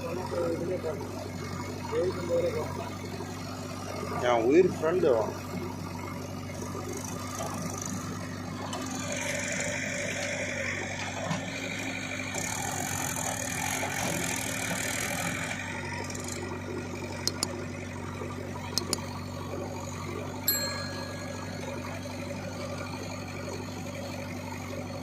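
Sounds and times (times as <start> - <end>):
heavy machine engine running: 0.0 - 25.0
sharp clicks: 17.2 - 17.6, 18.8 - 19.1.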